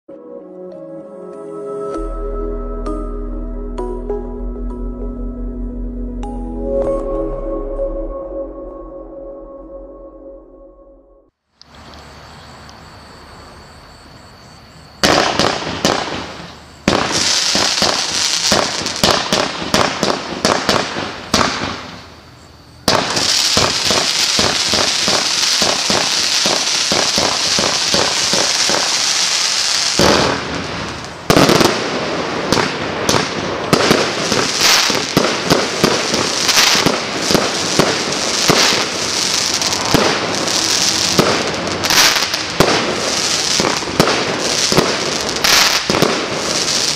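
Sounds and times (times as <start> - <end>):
fireworks launching and crackling: 15.0 - 22.2, 22.9 - 46.9.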